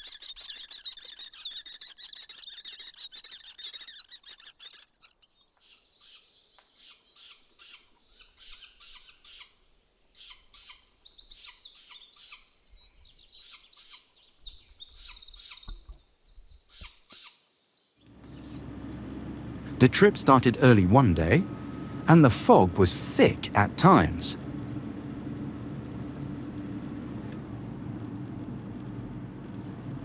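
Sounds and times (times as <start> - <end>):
bird trill: 0.0 - 9.6, 10.2 - 18.6
small birds chirping: 0.0 - 18.6.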